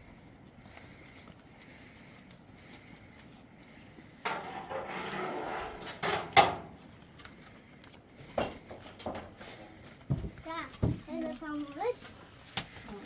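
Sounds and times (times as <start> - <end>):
rustling scrape: 4.2 - 6.9.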